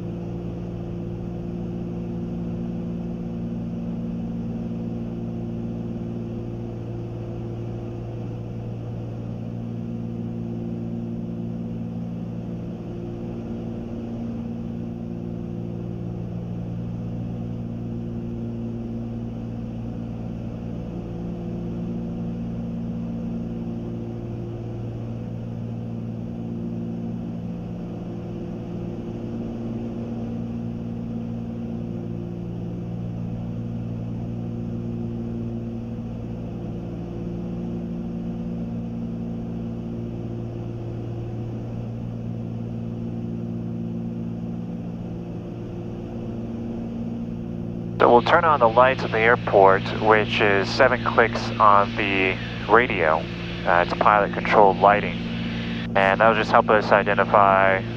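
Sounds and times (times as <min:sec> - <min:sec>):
twin propeller engines droning: 0:46.8 - 0:57.9.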